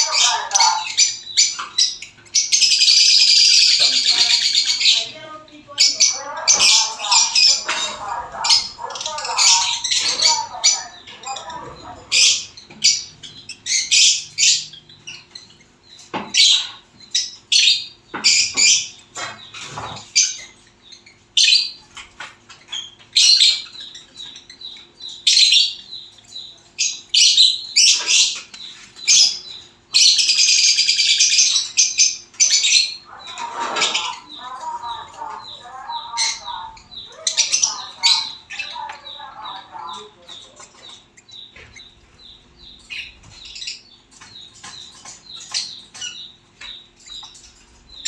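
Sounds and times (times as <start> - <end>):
baby birds chirping: 0.0 - 48.0.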